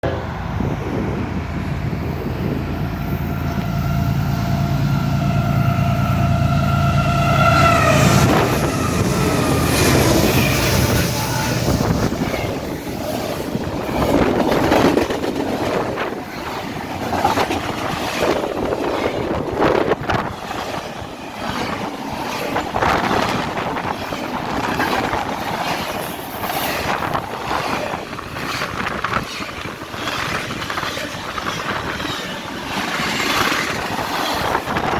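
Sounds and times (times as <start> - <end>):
locomotive engines rumbling: 0.0 - 34.9
train horn chord: 3.5 - 9.9
train wheels clattering on rails: 7.7 - 34.9.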